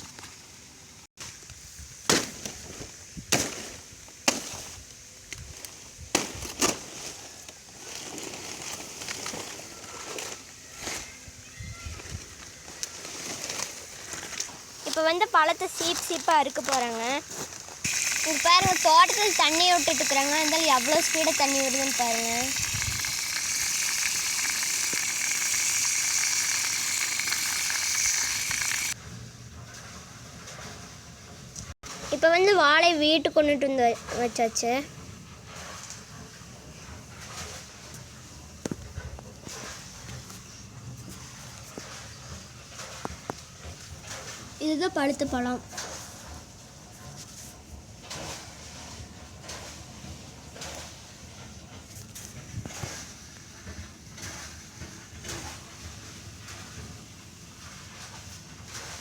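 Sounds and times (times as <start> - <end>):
blade chopping banana plant: 2.0 - 2.7, 3.3 - 4.8, 6.1 - 7.1
water gushing: 14.9 - 17.2, 17.8 - 29.0, 52.1 - 59.0.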